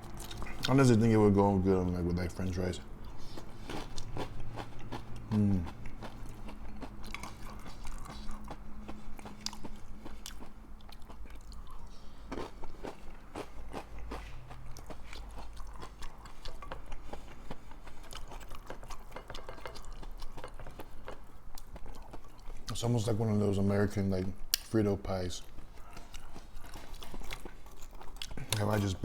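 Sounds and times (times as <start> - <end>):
person chewing crunchy food: 0.0 - 1.2, 2.4 - 22.7, 25.4 - 29.0.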